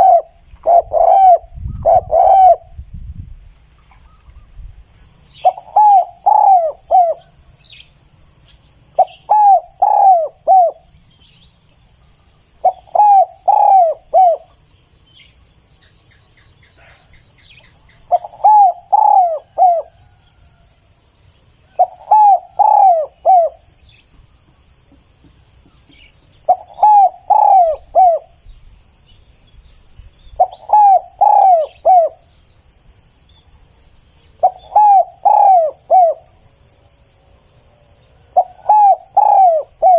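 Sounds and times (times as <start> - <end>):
dove cooing: 0.0 - 2.8, 5.4 - 7.4, 9.0 - 11.0, 12.6 - 14.6, 18.1 - 20.2, 21.7 - 23.6, 25.9 - 28.4, 30.4 - 32.3, 34.4 - 36.4, 38.3 - 39.9.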